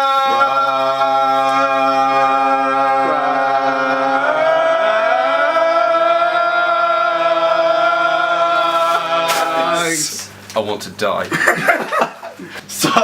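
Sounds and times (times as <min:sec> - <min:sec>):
choir singing held chord: 0:00.3 - 0:10.1.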